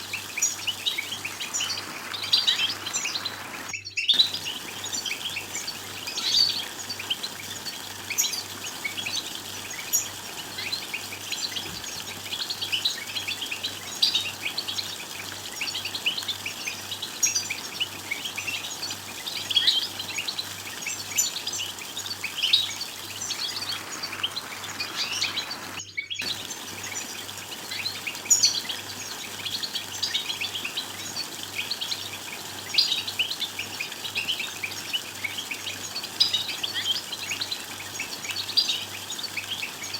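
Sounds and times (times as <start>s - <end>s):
goldfinches twittering: 0.0s - 39.9s.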